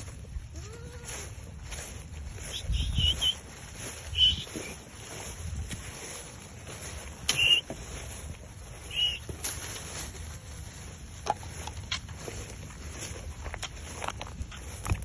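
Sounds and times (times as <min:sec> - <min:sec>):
short high chirps: 0:02.5 - 0:03.4, 0:04.1 - 0:04.5, 0:07.3 - 0:07.6, 0:08.9 - 0:09.2.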